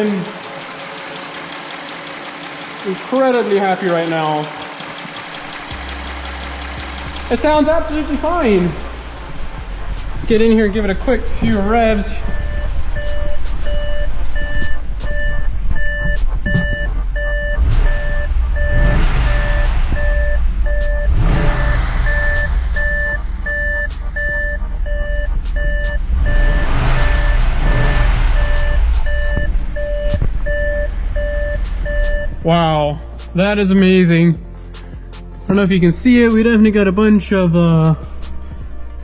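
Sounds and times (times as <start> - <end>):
car engine idling and revving: 0.0 - 39.0
warning beeps: 11.2 - 33.6.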